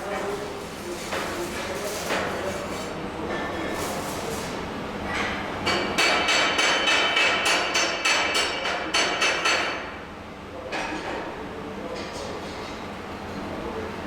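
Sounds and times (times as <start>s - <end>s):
hammer striking metal: 5.7s - 9.8s.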